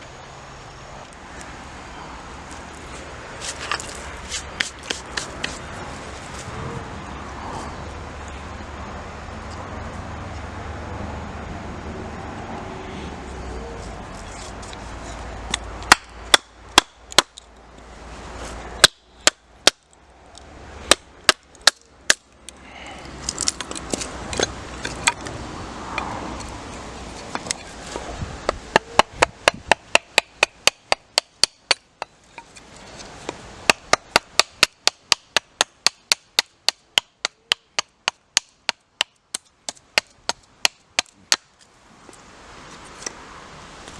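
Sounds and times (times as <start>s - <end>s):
wood being chopped: 3.6s - 5.6s, 15.5s - 17.4s, 18.8s - 19.9s, 20.9s - 22.3s, 28.4s - 32.1s, 33.3s - 41.5s.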